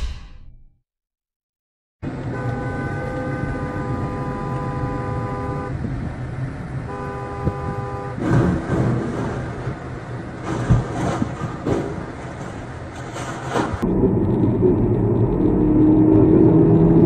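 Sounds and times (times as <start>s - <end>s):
road and engine noise: 2.0s - 17.0s
vehicle horn blasts: 2.2s - 5.9s, 6.8s - 8.2s.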